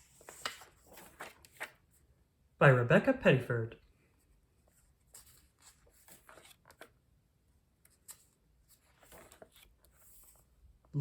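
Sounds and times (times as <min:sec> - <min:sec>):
paper rustling: 0:00.0 - 0:02.0, 0:04.3 - 0:07.0, 0:07.8 - 0:10.7
book page clicks: 0:00.2 - 0:01.7.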